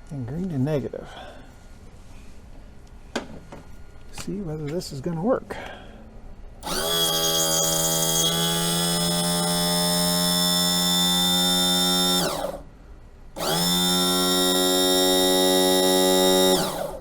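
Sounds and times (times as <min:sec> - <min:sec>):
electric pump motor humming: 0:06.6 - 0:12.7, 0:13.4 - 0:17.0.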